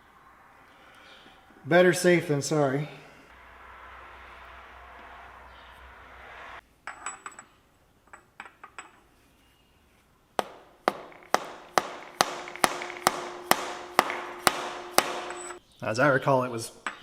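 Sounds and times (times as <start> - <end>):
hammer blows ringing on metal: 10.4 - 15.6.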